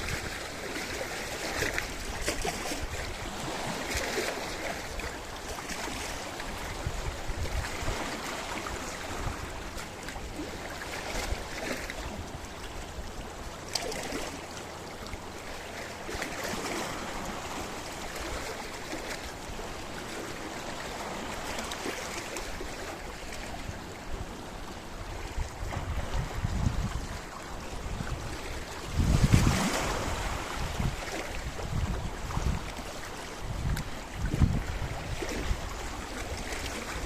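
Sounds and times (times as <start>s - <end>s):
wind on microphone: 0.0s - 0.4s, 5.9s - 10.4s, 23.5s - 37.0s
sea waves on rocky shore: 0.0s - 37.0s.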